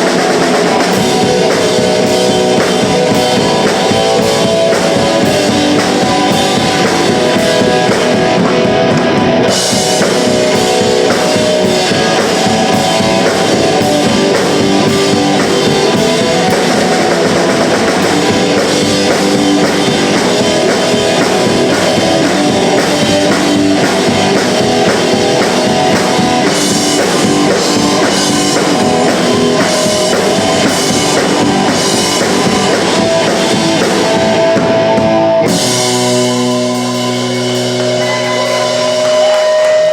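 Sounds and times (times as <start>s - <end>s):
punk rock band playing: 0.0s - 39.9s
cymbals: 35.5s - 39.9s.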